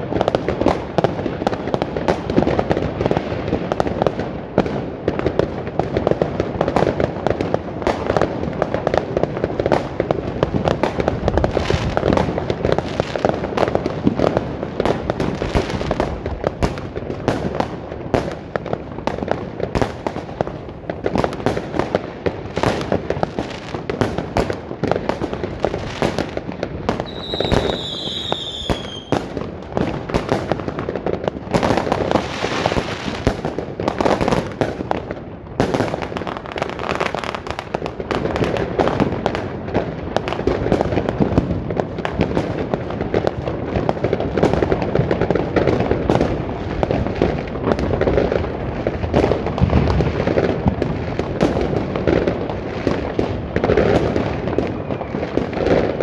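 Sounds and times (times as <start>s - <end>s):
fireworks bangs and crackling: 0.0s - 56.0s
whistling firework: 0.1s - 56.0s.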